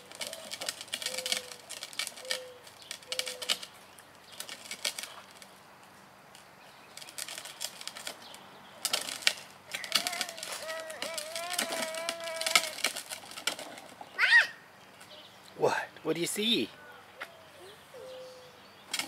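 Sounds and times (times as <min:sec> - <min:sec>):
toy bike clattering clicks: 0:00.0 - 0:03.7, 0:07.0 - 0:13.9.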